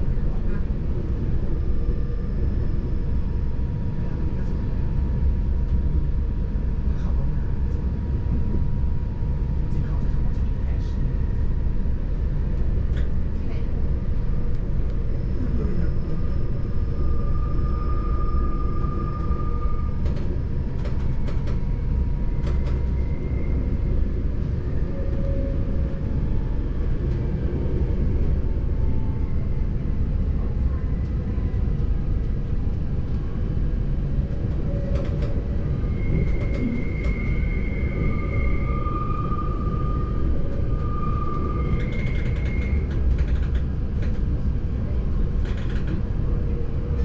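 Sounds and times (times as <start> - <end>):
train rumbling along track: 0.0 - 47.0
high-pitched wheel squeals: 35.8 - 42.9.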